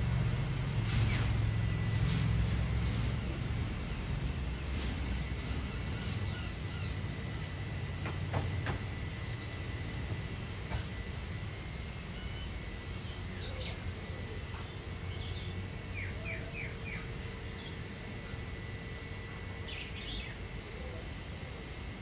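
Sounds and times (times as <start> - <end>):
birds chirping: 5.1 - 7.2, 12.1 - 18.4, 19.5 - 20.5.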